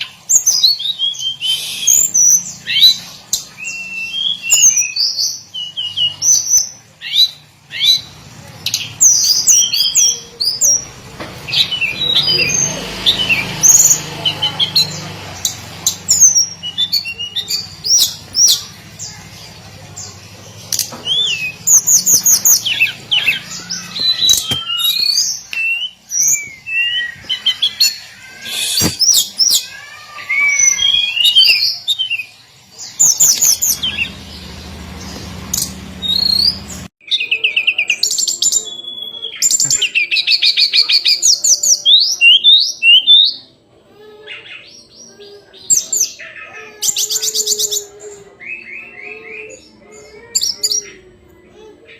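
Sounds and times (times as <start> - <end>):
bird singing whistles and trills: 0.0 - 8.0.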